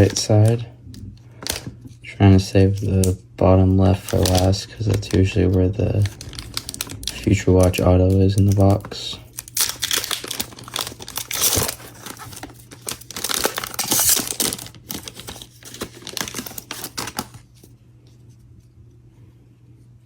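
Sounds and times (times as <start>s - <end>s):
foil wrapper tearing and crinkling: 0.0s - 0.6s, 3.8s - 17.7s.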